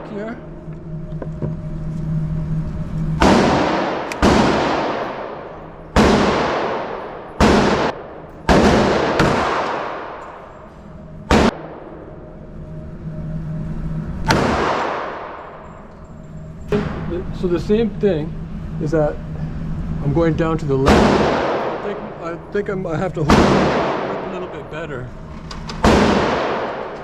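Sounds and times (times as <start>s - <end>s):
ventilation hum: 0.0s - 27.0s
pistol shots echoing: 3.2s - 10.5s, 11.2s - 12.0s, 14.2s - 15.6s, 20.8s - 22.2s, 23.2s - 24.7s, 25.8s - 27.0s.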